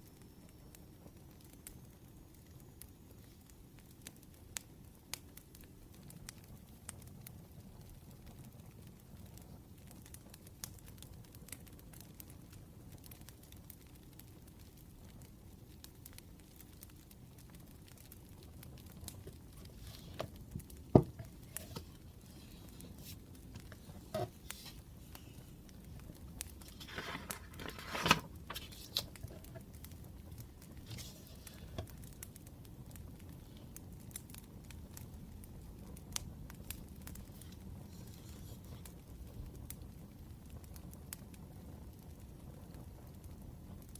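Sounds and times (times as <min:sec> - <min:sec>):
faint scattered crackles: 0:00.0 - 0:43.9
paper rustling: 0:19.3 - 0:25.7, 0:26.5 - 0:29.8, 0:30.8 - 0:32.0, 0:37.4 - 0:38.9.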